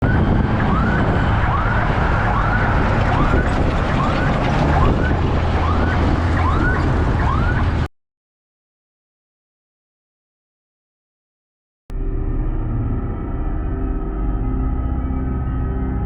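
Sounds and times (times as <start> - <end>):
heavy vehicle engine rumbling: 0.0 - 7.9, 11.9 - 16.0.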